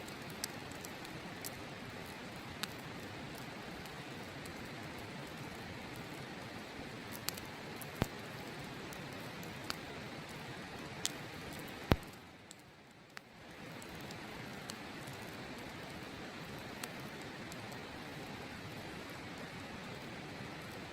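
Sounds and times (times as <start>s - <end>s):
wood fire crackling and popping: 0.0s - 20.9s.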